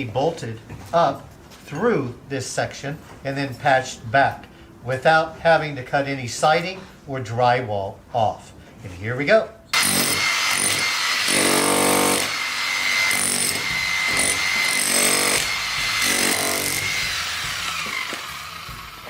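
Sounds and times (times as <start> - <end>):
electric drill boring into concrete: 9.8 - 19.0.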